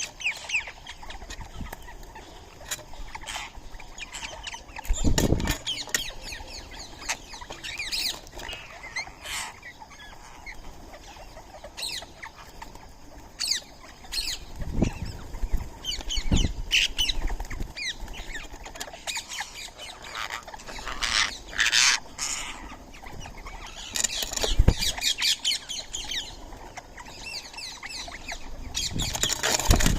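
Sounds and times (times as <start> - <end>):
birds chattering calls: 0.0 - 29.9
wing-flap thumps: 28.9 - 29.9.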